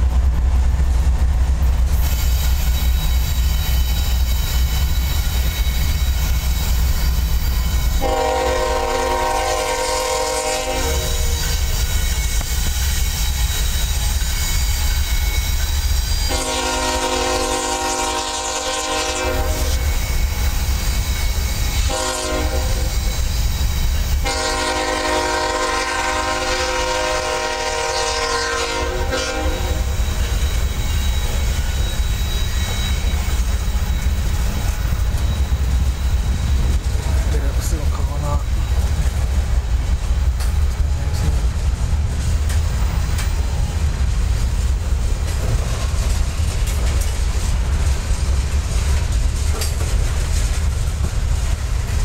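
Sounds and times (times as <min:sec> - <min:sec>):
freight cars rumbling and clacking: 0:00.0 - 0:08.0, 0:10.8 - 0:16.4, 0:29.6 - 0:52.0
distant locomotive horn: 0:07.8 - 0:11.6, 0:16.3 - 0:20.2, 0:21.7 - 0:23.2, 0:24.2 - 0:33.4.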